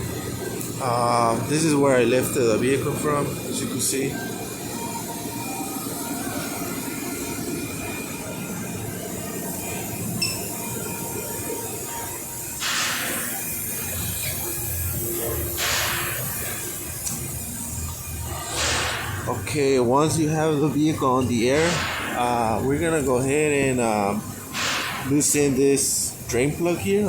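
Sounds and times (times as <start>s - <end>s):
air compressor running: 0.0s - 27.0s
short air hisses: 12.6s - 13.3s, 15.6s - 16.4s, 18.5s - 19.2s, 24.6s - 25.2s.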